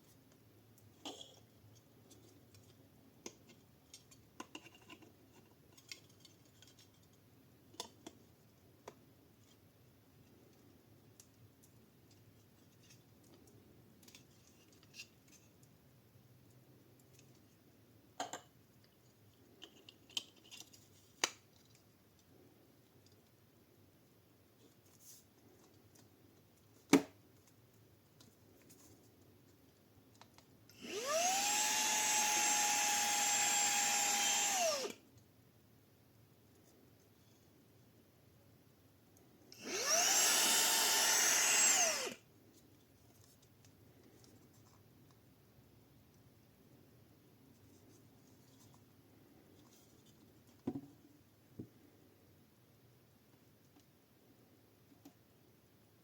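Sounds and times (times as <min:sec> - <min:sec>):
handheld vacuum motor whine: 0:30.7 - 0:35.0, 0:39.6 - 0:42.2.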